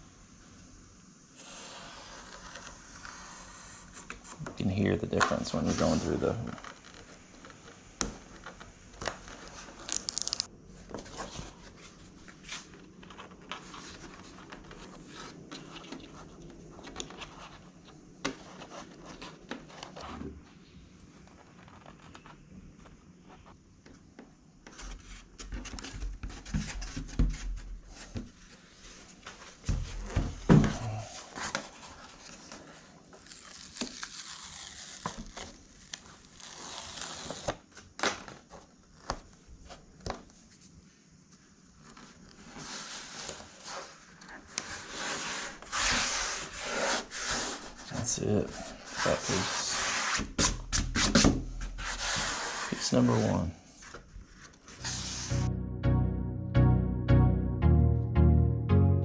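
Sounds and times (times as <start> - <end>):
paper crinkling and tearing: 9.0 - 10.5, 30.8 - 39.4.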